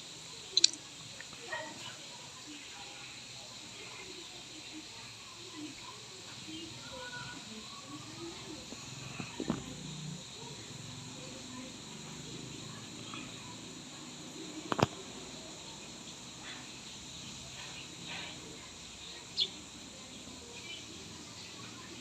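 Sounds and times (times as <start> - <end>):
faint chirps: 0.0 - 22.0
outdoor background noise: 0.0 - 22.0
sharp click: 0.6 - 0.8.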